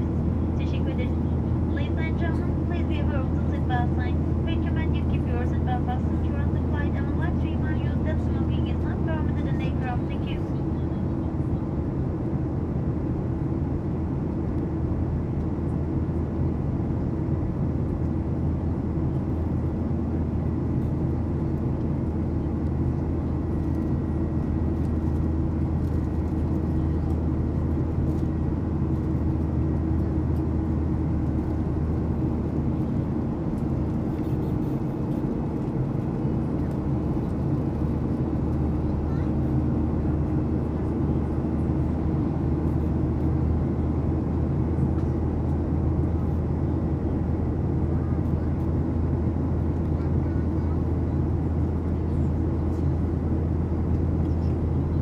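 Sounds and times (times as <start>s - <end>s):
airplane cabin engine drone: 0.0s - 55.0s.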